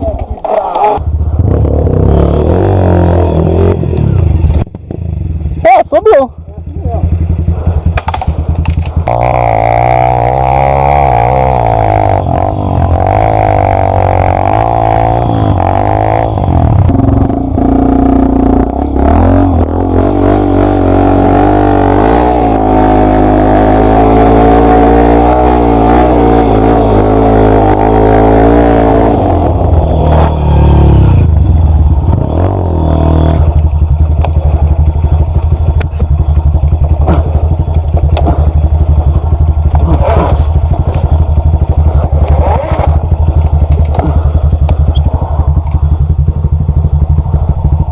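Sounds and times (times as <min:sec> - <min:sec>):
motorcycle engine revving: 0:00.1 - 0:47.9.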